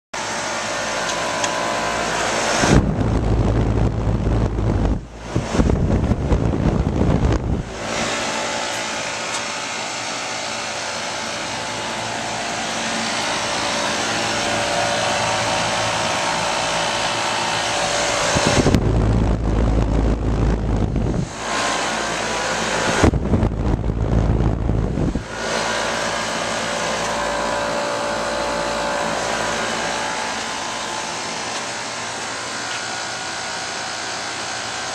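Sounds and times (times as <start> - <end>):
air conditioning fan rushing: 0.2 - 34.9
wind rumble on microphone: 2.5 - 8.2, 13.8 - 25.8.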